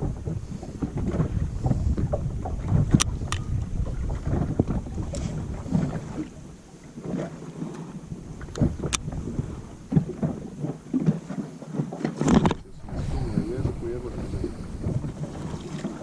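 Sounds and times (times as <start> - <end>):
wind buffeting microphone: 0.0 - 11.4, 12.0 - 16.0
water slapping boat hull: 0.0 - 16.0
sharp clicks or knocks: 12.2 - 12.7.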